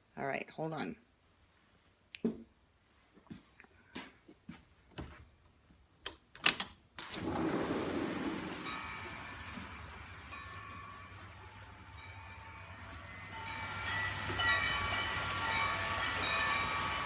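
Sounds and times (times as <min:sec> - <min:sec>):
door opening: 0:06.4 - 0:09.7
heavy rain hissing: 0:07.2 - 0:17.0.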